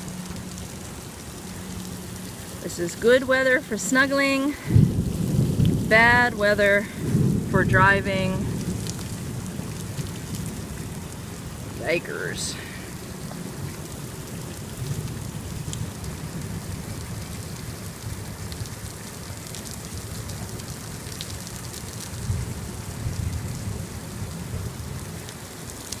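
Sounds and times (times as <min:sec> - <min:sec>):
heavy rain pouring: 0:00.0 - 0:26.0
low rumble: 0:04.5 - 0:13.8
sharp drip ticks: 0:13.1 - 0:22.2.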